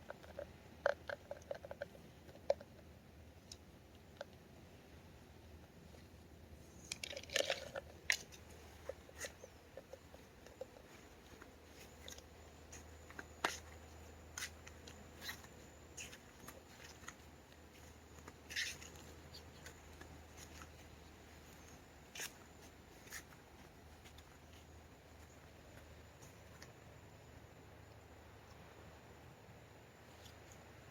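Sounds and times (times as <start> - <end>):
small clicks and crackles: 0.0 - 4.4, 6.7 - 26.8
low steady hum: 0.0 - 30.9.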